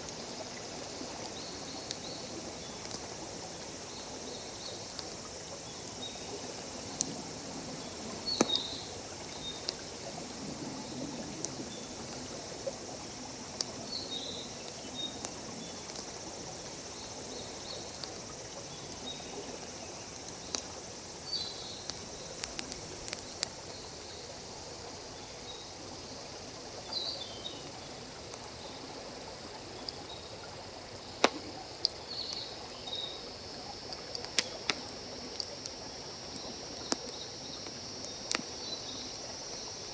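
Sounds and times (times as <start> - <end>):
stream hissing: 0.0 - 39.9
wood fire crackling and popping: 21.8 - 23.6, 33.7 - 35.8.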